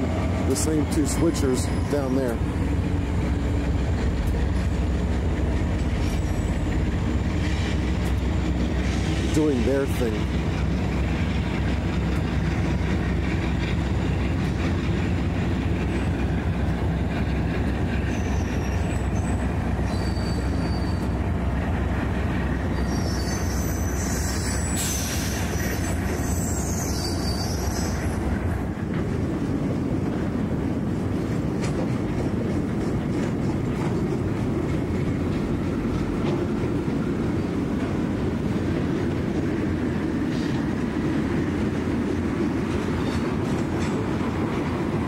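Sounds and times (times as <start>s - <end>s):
railroad cars rumbling: 0.0s - 45.0s
steel wheel squeal: 1.4s - 2.4s, 6.0s - 7.8s, 18.1s - 21.2s, 22.7s - 28.2s.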